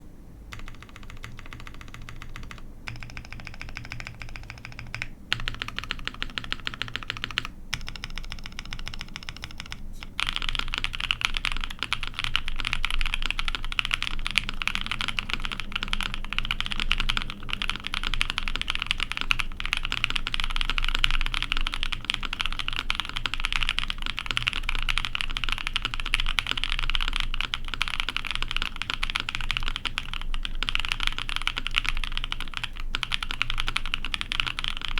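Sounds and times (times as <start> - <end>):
typing on mechanical keyboard: 0.5 - 34.9.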